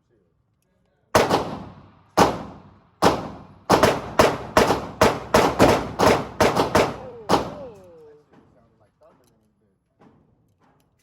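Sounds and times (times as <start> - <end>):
gunshots with ringing tail: 1.2 - 8.0.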